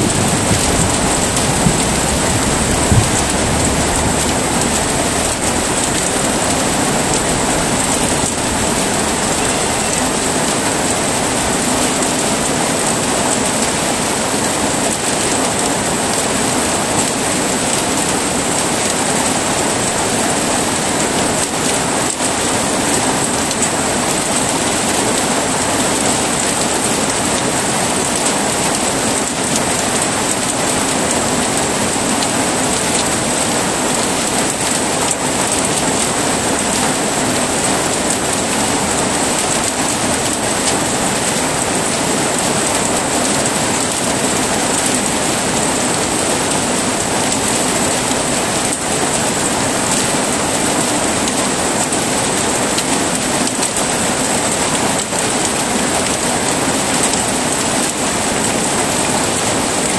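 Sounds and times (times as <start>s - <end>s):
low rumble of thunder: 0.0s - 10.3s
heavy rain falling: 0.0s - 59.9s.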